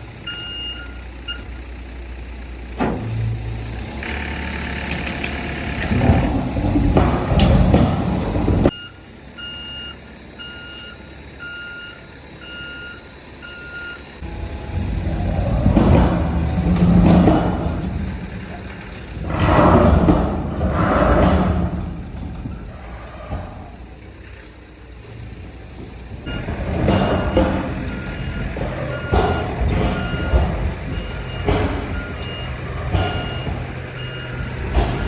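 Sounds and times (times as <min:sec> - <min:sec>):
heavy vehicle engine revving: 0:00.0 - 0:08.8, 0:14.1 - 0:35.0
reversing alarm beeping: 0:00.2 - 0:01.5, 0:08.2 - 0:23.7, 0:26.2 - 0:35.0.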